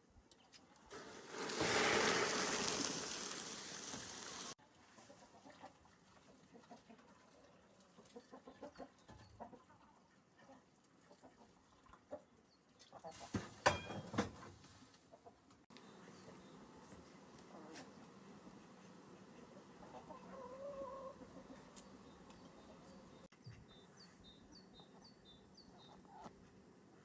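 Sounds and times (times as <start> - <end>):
chickens clucking: 4.9 - 13.4, 17.3 - 23.2.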